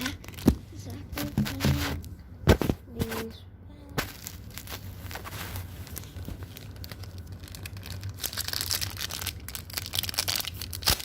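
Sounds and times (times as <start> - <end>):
wrapper tearing and crinkling: 0.0 - 0.6, 4.0 - 11.0.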